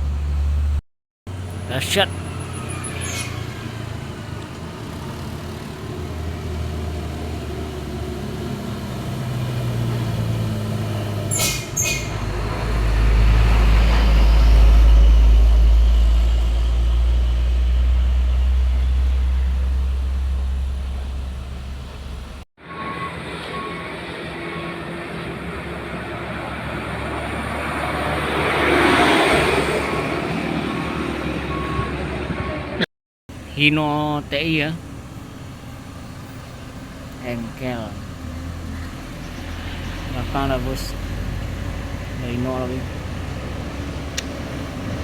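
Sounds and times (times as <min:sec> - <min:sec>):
truck diesel engine labouring: 0:00.0 - 0:45.0
brief sharp hisses: 0:11.3 - 0:12.1.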